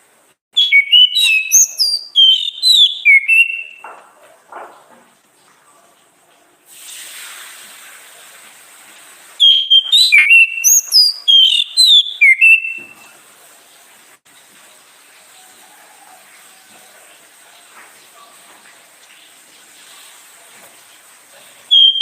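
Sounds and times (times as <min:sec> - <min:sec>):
thrush singing whistled notes: 0:00.6 - 0:03.8, 0:09.4 - 0:13.1, 0:21.7 - 0:22.0
faint hiss: 0:06.7 - 0:11.3.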